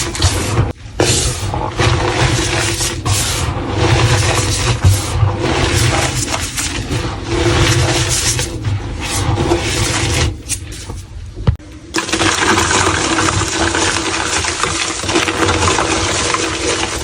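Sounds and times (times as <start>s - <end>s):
chalk crunching: 0.0s - 11.1s.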